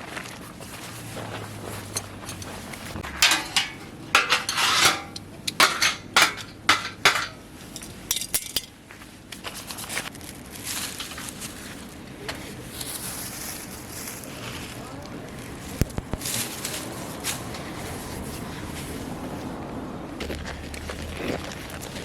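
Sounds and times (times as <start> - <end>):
handling sounds: 0.0 - 19.0
cookware clattering: 3.0 - 7.4.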